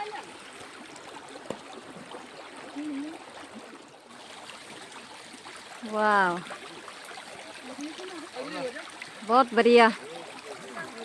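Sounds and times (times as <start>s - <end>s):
stream water running: 0.0s - 11.0s.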